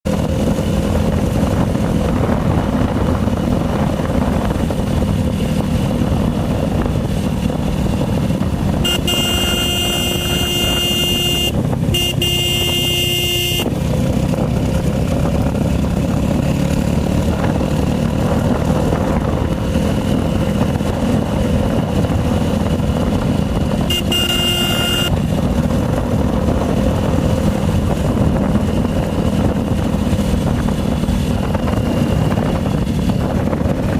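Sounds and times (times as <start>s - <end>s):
motorcycle engine running: 0.0s - 33.9s
vehicle horn honking: 8.8s - 13.8s, 23.8s - 25.3s.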